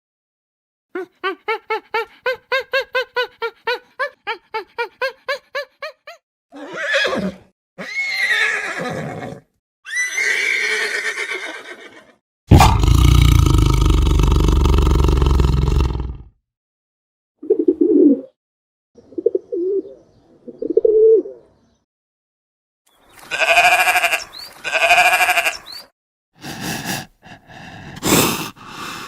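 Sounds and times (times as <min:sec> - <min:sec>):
harsh animal calls: 0:12.5 - 0:16.2, 0:23.2 - 0:25.8.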